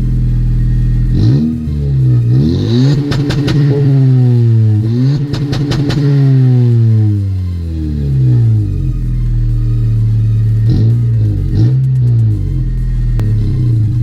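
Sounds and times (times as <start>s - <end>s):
car engine revving: 0.0s - 14.0s
exhaust pops: 1.0s - 7.2s.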